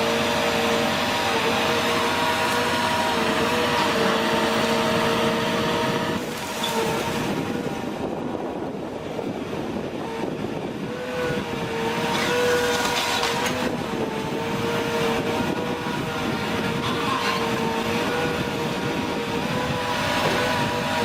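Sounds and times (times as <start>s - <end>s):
heavy machinery engine drone: 0.0s - 21.0s
wavering machine whine: 0.0s - 21.0s.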